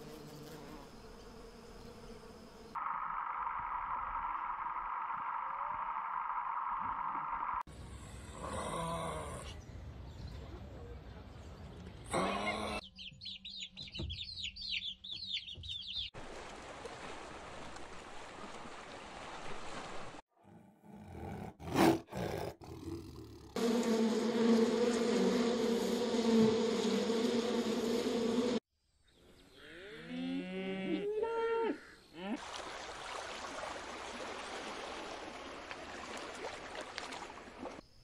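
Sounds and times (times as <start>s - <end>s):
cow mooing: 29.6s - 32.4s.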